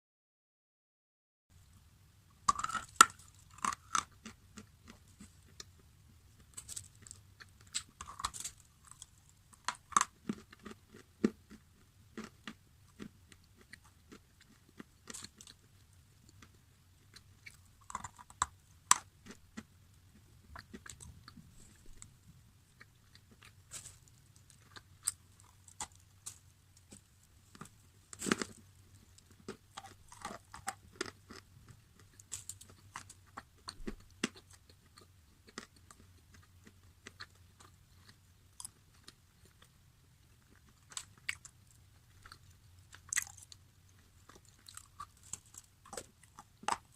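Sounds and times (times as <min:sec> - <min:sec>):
crunchy food chewing: 0:02.5 - 0:46.9.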